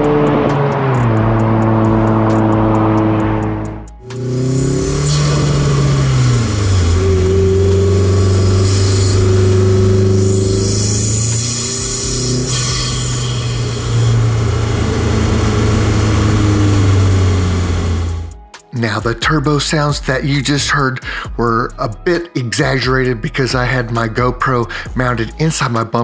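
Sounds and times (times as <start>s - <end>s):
car engine under load: 0.0s - 18.6s.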